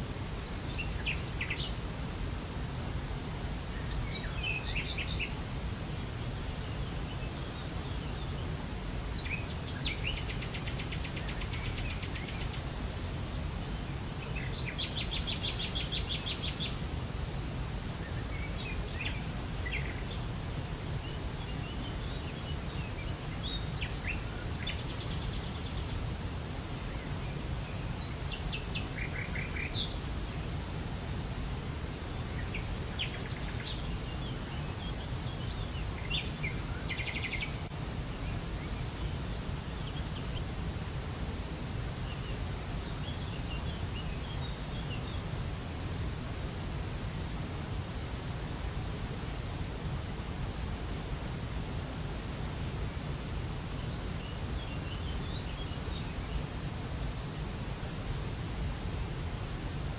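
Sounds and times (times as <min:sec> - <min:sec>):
songbirds trilling: 0:03.4 - 0:12.8, 0:13.6 - 0:16.8, 0:18.0 - 0:40.5.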